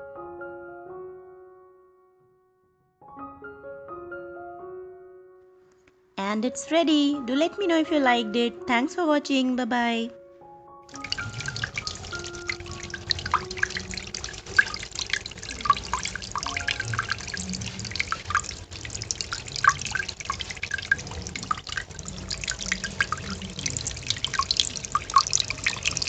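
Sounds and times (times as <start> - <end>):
water splashing and dripping: 10.9 - 26.0.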